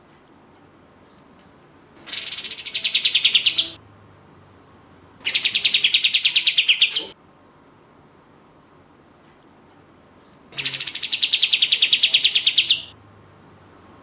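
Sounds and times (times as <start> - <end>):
bird rattling trills: 2.1 - 3.8, 10.6 - 12.9.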